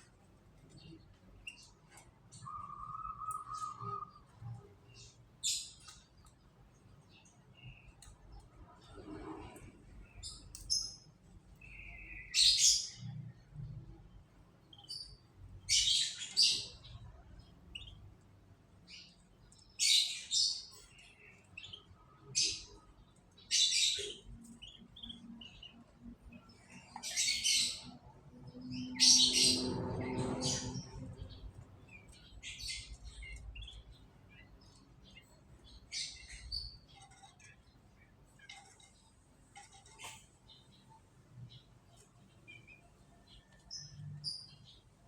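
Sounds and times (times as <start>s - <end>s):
canaries chirping: 0.0s - 45.0s.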